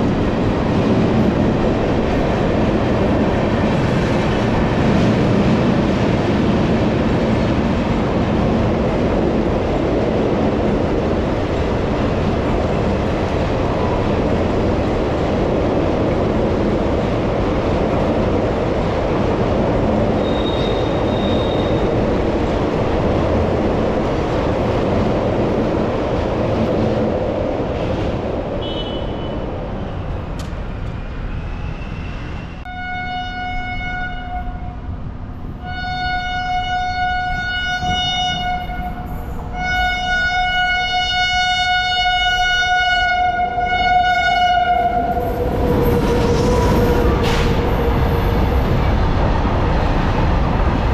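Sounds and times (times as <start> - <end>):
train coaches rumbling on track: 0.0 - 50.9
locomotive horn blast: 32.7 - 34.8, 35.6 - 39.0, 39.6 - 45.1.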